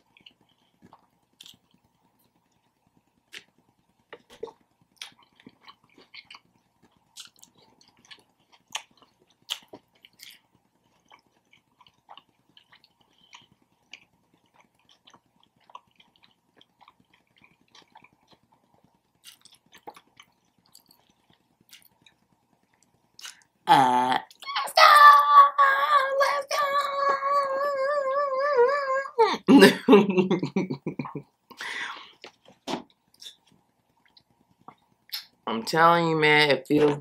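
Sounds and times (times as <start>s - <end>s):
person chewing food: 0.0s - 23.6s, 30.8s - 35.4s.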